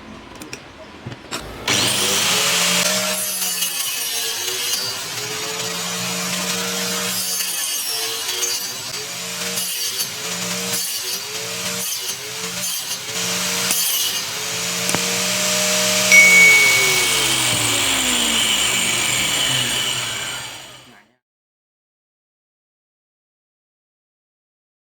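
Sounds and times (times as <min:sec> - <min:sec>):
angle grinder cutting: 0:01.3 - 0:20.9
grinder disc spinning down: 0:15.0 - 0:20.9.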